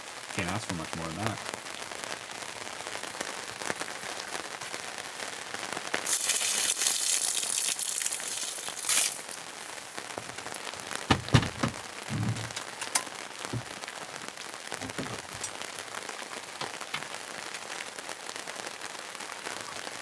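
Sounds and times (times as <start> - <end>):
rain pattering: 0.0 - 20.0
sharp knocks: 11.1 - 13.0, 14.8 - 15.5.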